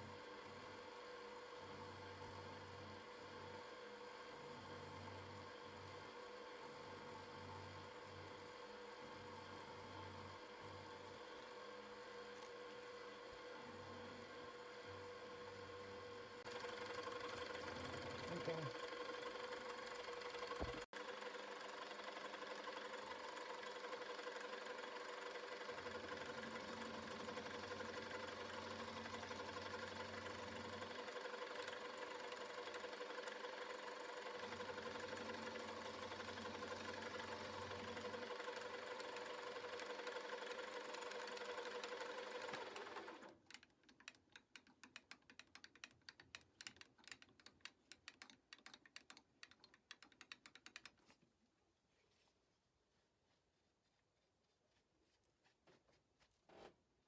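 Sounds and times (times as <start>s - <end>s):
milling machine spindle whining: 16.5s - 43.3s.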